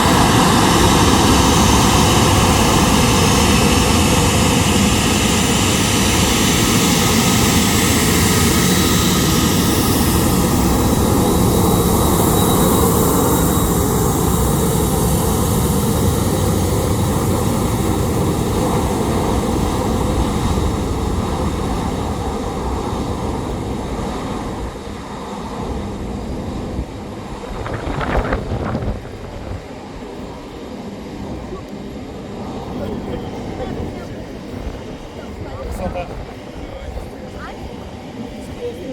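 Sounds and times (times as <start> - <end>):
jet engines taxiing: 0.0 - 38.9.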